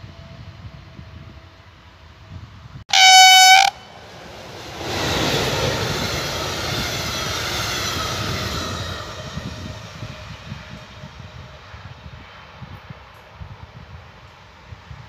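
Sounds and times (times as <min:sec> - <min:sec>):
passenger train passing: 0:00.0 - 0:15.0
train horn blast: 0:02.9 - 0:04.2.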